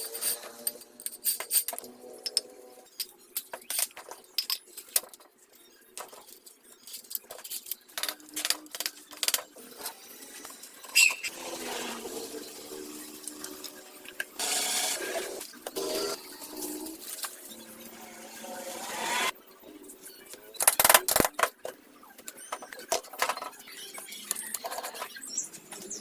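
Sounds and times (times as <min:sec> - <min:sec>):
metal parts and tools clinking: 0:00.0 - 0:11.3, 0:20.4 - 0:26.0.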